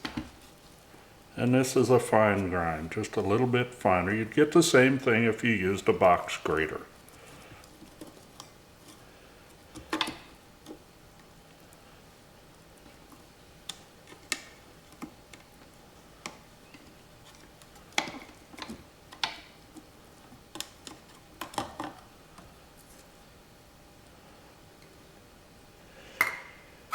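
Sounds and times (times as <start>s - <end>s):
bowls clicking and knocking: 26.2s - 26.6s.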